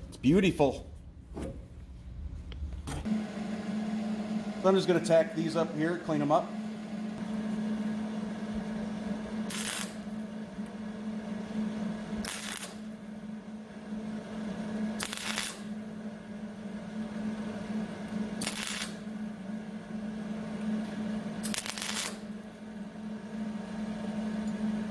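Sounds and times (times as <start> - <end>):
steady low hum: 0.0 - 24.9
welding crackle: 9.4 - 10.3, 12.2 - 13.0, 15.0 - 15.8, 18.1 - 19.2, 21.4 - 22.5.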